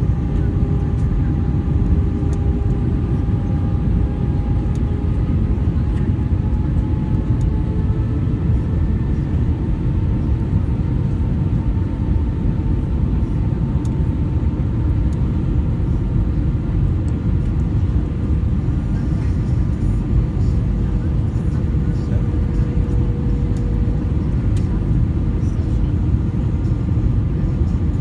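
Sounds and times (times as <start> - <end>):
airplane cabin engine roar: 0.0 - 28.0.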